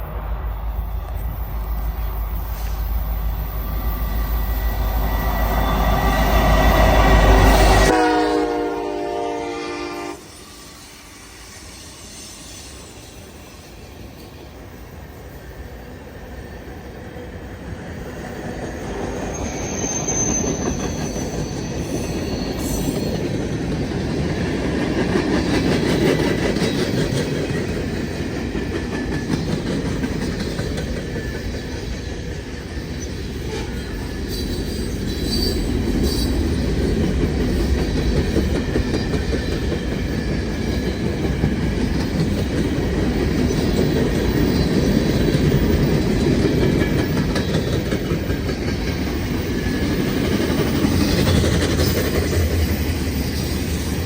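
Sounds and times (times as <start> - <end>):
freight train wheels rumbling: 0.0 - 54.0
faint high wheel squeal: 0.5 - 7.9, 18.8 - 23.5, 30.7 - 37.0
clickety-clack of rail joints: 17.7 - 54.0.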